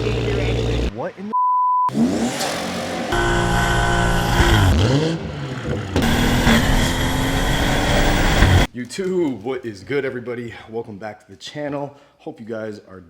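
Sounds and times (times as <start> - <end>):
car engine accelerating: 0.0 - 0.9, 1.9 - 8.7.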